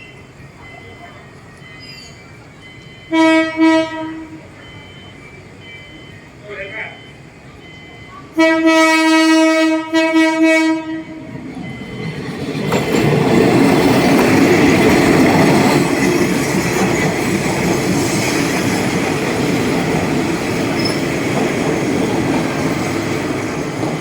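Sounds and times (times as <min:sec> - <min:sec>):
train rumbling on rails: 0:00.0 - 0:24.0
train horn: 0:03.1 - 0:04.5, 0:08.4 - 0:11.3.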